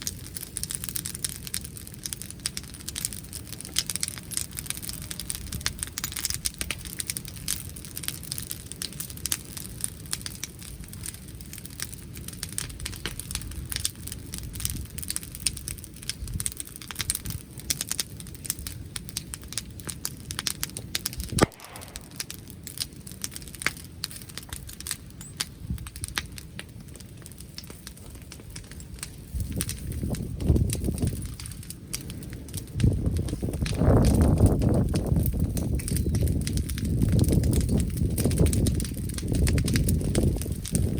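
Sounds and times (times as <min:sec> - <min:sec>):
bonfire crackling and popping: 0:00.0 - 0:40.9
wood fire sharp snap: 0:00.0 - 0:40.9
wind rumble on microphone: 0:04.8 - 0:06.9, 0:12.7 - 0:17.6, 0:25.6 - 0:26.2, 0:28.1 - 0:40.9.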